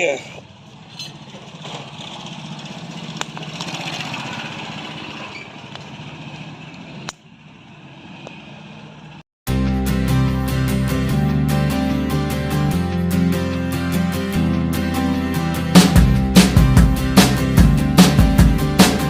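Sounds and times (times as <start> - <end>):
vehicle noise with low hum: 0.0 - 9.2
music: 9.5 - 19.0.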